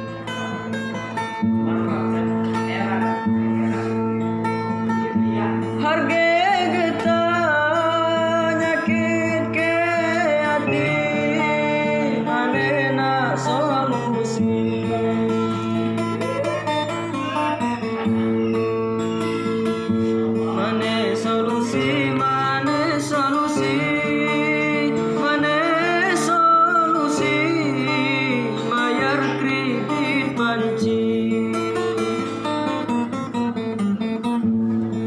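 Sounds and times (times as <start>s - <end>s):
acoustic guitar chords: 0.0s - 35.0s
person singing with vibrato: 5.3s - 18.0s, 20.2s - 32.5s.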